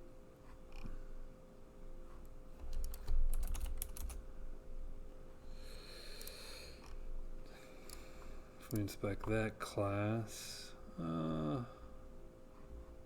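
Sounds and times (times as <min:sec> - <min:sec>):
computer keyboard typing: 0:02.6 - 0:04.2.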